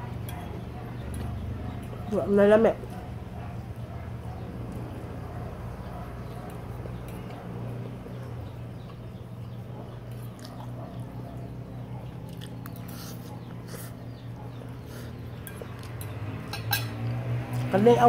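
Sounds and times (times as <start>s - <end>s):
person chewing food: 6.4s - 11.4s, 12.0s - 17.7s.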